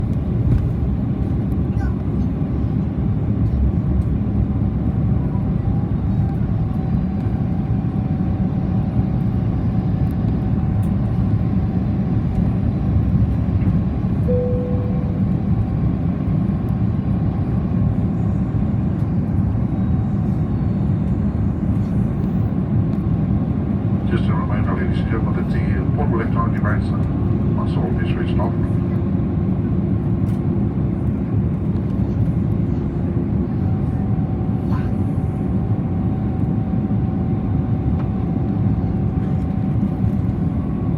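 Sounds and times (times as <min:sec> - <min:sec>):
airplane cabin rumble: 0:00.0 - 0:40.9
brief cabin tone: 0:14.2 - 0:15.8.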